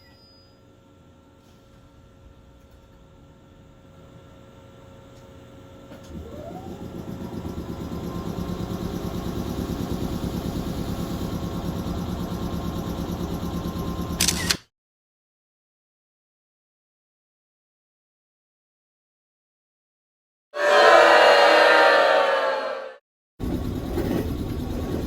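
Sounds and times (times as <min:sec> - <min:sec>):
electric train whine and running: 0:02.2 - 0:14.5, 0:20.6 - 0:25.0.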